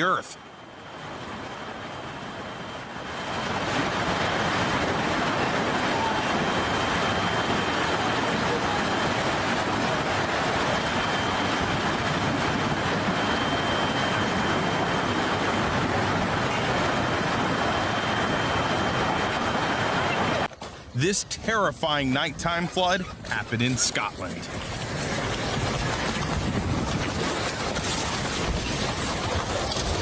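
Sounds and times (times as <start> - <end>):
wind: 0.0 - 30.0
heavy rain: 3.4 - 20.5.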